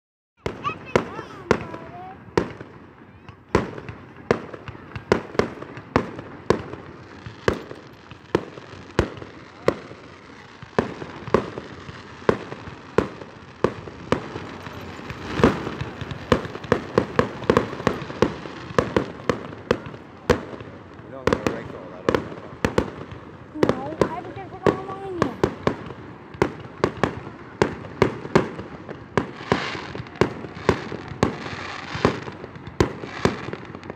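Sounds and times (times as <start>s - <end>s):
fireworks shells bursting: 5.1s - 27.0s.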